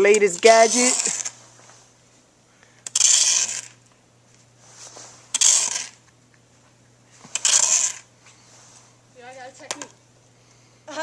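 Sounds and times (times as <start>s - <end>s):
snow shovel scraping snow: 0.4s - 1.9s, 3.0s - 3.7s, 4.6s - 6.0s, 7.2s - 9.0s.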